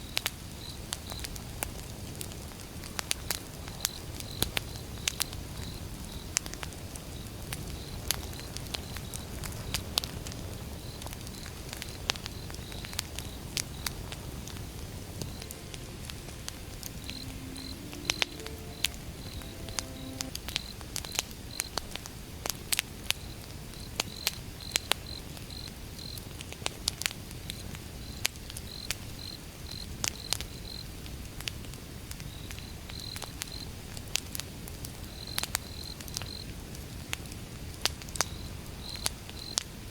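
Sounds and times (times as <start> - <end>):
wood fire crackling and popping: 6.4 - 15.3
crickets chirping: 10.8 - 20.7.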